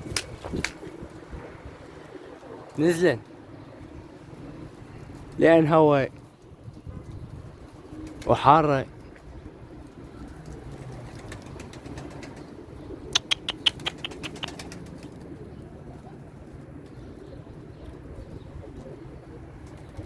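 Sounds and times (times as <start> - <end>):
pigeon wing claps: 0.0 - 1.1, 10.3 - 12.5, 13.1 - 15.3
pigeons cooing: 0.0 - 5.6, 6.2 - 20.0.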